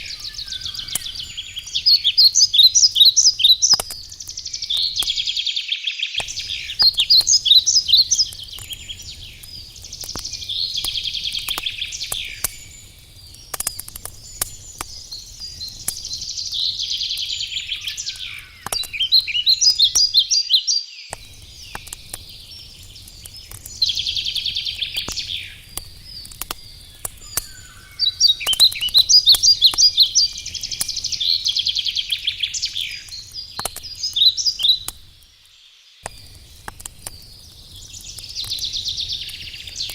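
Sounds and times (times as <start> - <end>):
campfire crackling and popping: 0.0 - 5.6, 6.2 - 39.9
songbird trilling: 0.0 - 12.9, 14.2 - 21.8, 26.2 - 34.9.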